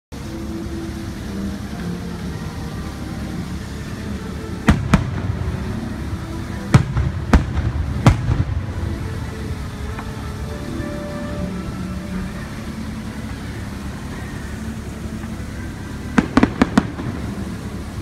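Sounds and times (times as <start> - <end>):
low background rumble: 0.2 - 18.0
firework shells bursting: 4.6 - 6.0, 6.6 - 9.2, 16.1 - 18.0.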